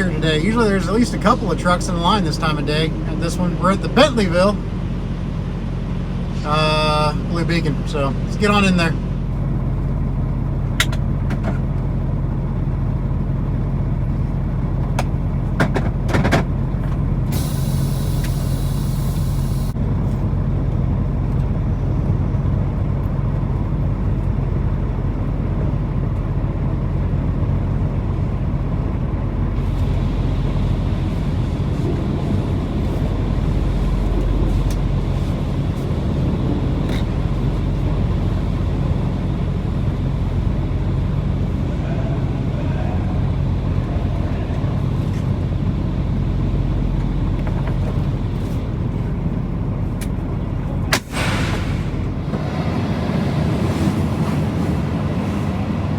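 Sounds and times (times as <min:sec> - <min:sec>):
diesel truck engine droning: 0:00.0 - 0:55.9
air hiss: 0:17.3 - 0:19.8, 0:51.0 - 0:52.2.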